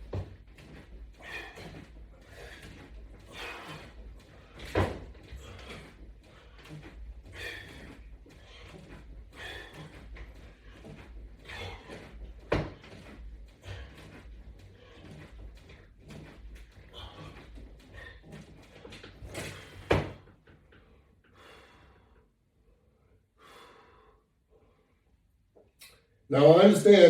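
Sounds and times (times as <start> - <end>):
person breathing rhythmically: 0.0 - 25.3.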